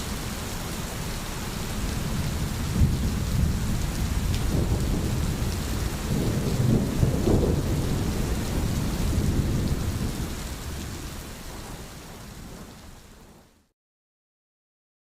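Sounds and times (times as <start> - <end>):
steady rain: 0.0 - 13.7
rolling thunder: 1.8 - 13.4.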